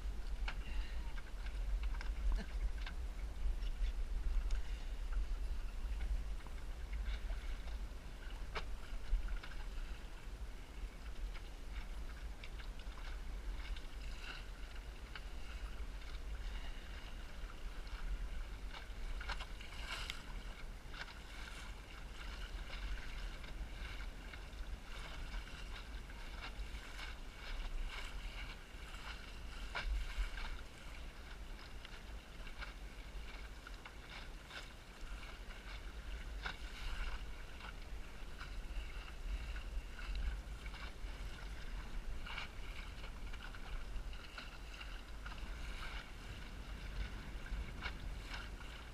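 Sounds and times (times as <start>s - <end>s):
water slapping against hull: 0.0s - 48.9s
wind buffeting microphone: 35.8s - 48.9s.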